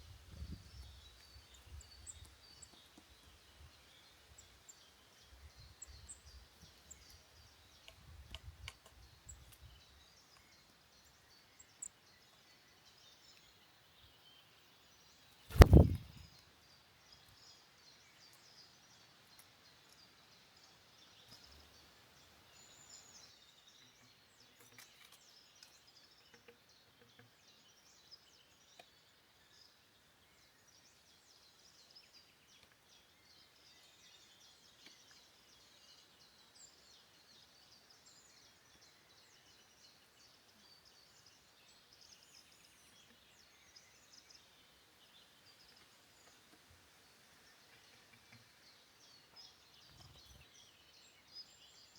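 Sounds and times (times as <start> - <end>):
birds chirping: 15.2 - 16.3.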